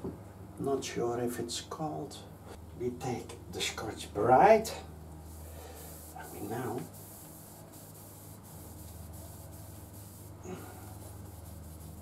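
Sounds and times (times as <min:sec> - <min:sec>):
scouring pad rubbing metal: 0:05.9 - 0:12.0.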